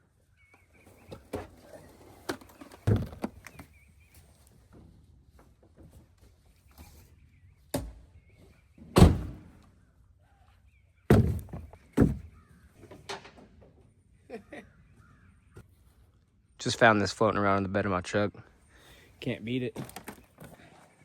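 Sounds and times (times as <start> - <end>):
heavy wooden thuds of logs: 11.1 - 12.5.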